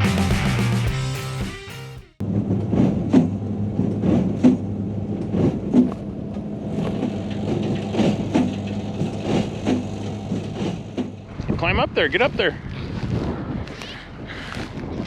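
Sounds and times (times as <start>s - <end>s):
tractor engine drone: 0.0s - 15.0s
hay baler knocks: 6.7s - 11.6s.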